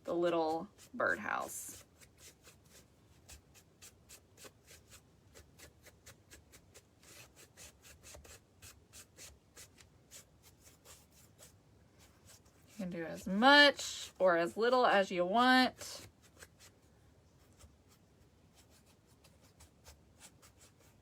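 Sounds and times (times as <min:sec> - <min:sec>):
foam brush rubbing strokes: 0:00.0 - 0:21.0.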